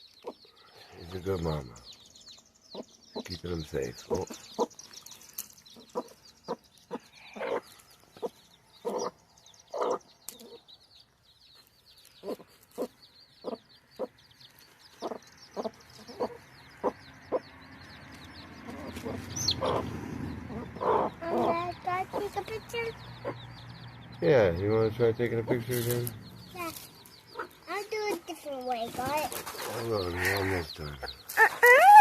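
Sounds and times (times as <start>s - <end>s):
hen clucking: 0.0s - 0.4s, 2.7s - 4.8s, 5.7s - 10.7s, 12.2s - 14.2s, 15.0s - 17.6s, 18.2s - 23.7s, 26.5s - 32.0s
chicks peeping: 0.0s - 32.0s.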